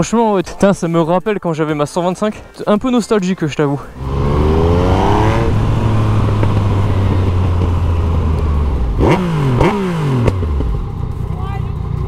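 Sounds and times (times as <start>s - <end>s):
wind rush: 4.0s - 9.1s
motorcycle engine revving: 4.0s - 12.0s.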